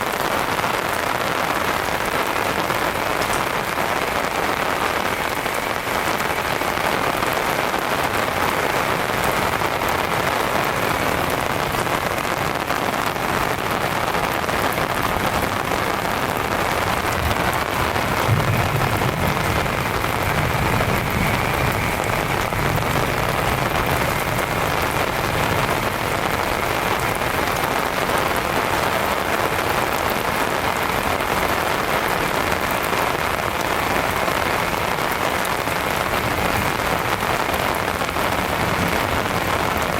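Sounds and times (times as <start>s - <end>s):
heavy rain falling: 0.0s - 39.9s
distant thunder rumble: 13.4s - 28.6s, 35.5s - 39.9s.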